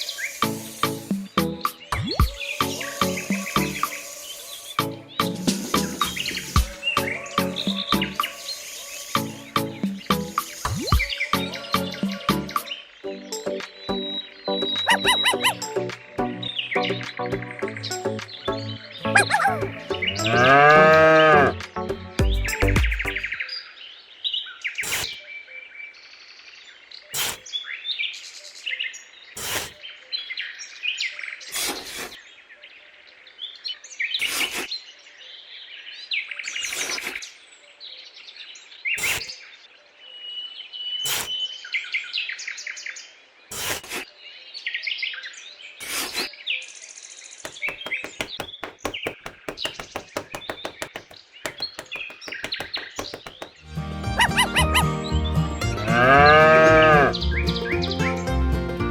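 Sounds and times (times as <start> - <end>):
small birds chirping: 0.0 - 12.9, 13.5 - 15.8
fast clicks: 47.5 - 53.6
sharp knocks: 47.5 - 53.6.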